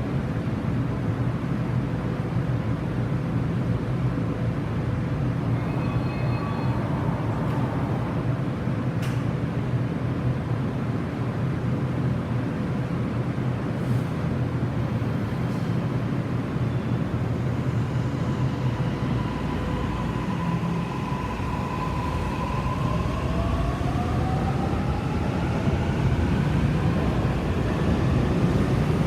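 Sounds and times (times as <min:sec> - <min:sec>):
electric train rumbling: 0:00.0 - 0:29.0
faint whine: 0:05.3 - 0:09.0.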